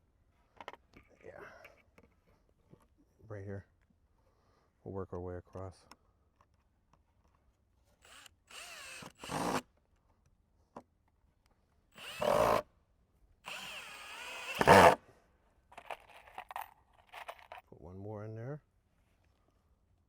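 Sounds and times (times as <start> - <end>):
power drill driving screws into wood: 8.0 - 9.7, 11.9 - 12.6, 13.4 - 15.0.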